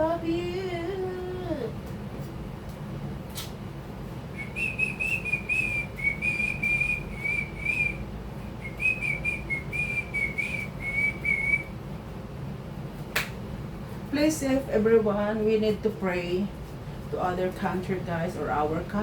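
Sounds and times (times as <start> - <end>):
person whistling a tune: 4.4 - 8.0, 8.6 - 11.7.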